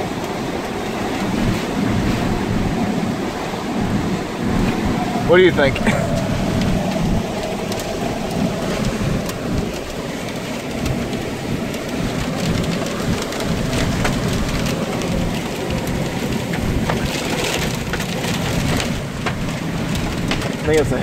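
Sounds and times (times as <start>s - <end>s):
heavy rain pelting vehicle: 0.0s - 21.0s
storm wind rumble: 0.0s - 21.0s
raindrops ticking on glass: 4.7s - 21.0s.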